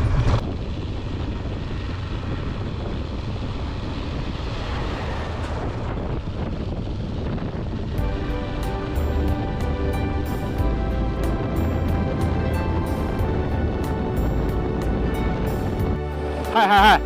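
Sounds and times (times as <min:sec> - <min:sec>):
low rumble: 0:00.0 - 0:16.4
wind rushing over microphone: 0:00.0 - 0:16.5
music: 0:08.0 - 0:17.0.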